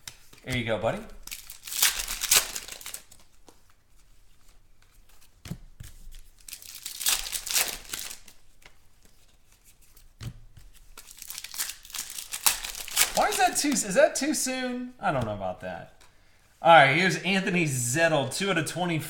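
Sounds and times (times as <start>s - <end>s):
card wrappers crinkling and tearing: 1.1s - 14.0s.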